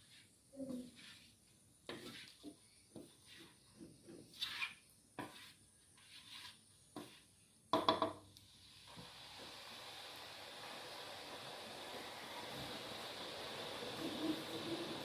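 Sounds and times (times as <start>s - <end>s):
steady hiss: 8.2s - 15.0s.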